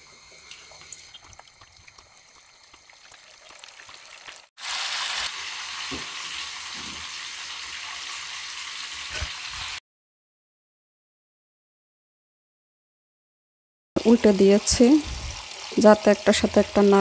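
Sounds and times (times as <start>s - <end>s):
meat deep-frying in hot oil: 0.0s - 9.8s, 14.0s - 17.0s.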